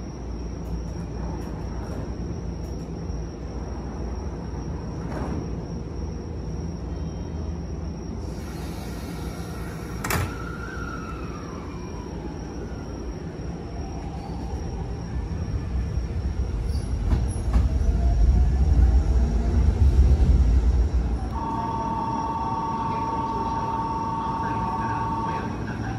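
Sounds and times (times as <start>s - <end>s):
electric train pulling away: 8.1s - 25.9s.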